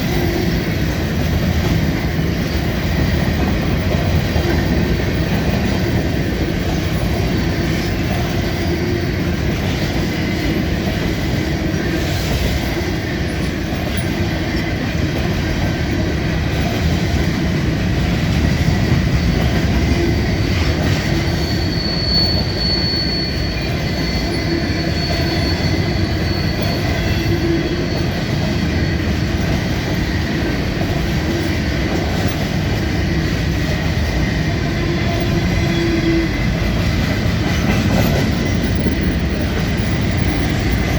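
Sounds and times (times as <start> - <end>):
high wheel squeal: 18.8 - 31.7, 33.0 - 40.9.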